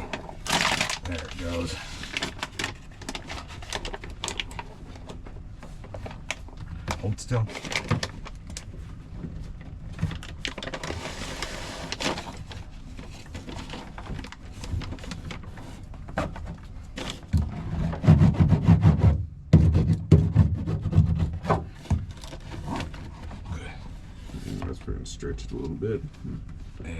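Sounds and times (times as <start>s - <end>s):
mat sheet crinkling and scraping: 0.0s - 19.0s, 19.6s - 26.9s
low thumps and rubbing: 17.4s - 25.0s.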